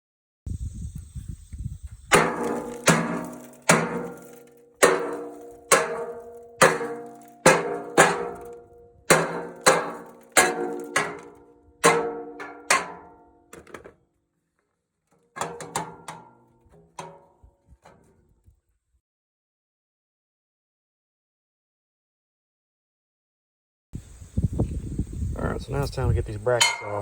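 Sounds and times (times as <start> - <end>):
hammer striking steel: 2.1 - 13.2, 26.6 - 27.0.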